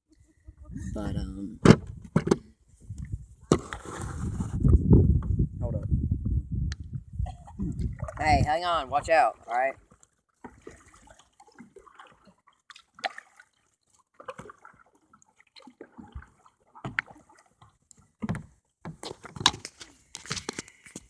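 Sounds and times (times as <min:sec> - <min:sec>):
paddle splashing: 0:03.4 - 0:04.6, 0:07.3 - 0:21.0
water sloshing and dripping: 0:07.2 - 0:21.0.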